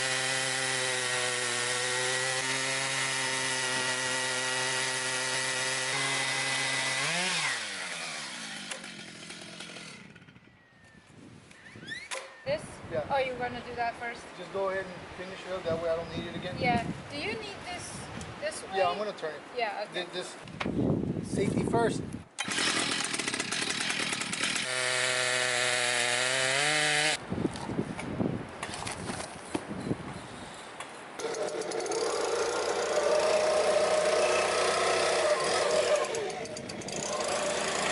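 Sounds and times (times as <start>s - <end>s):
power saw motor running: 0.0s - 10.6s, 22.4s - 27.2s, 31.2s - 37.9s.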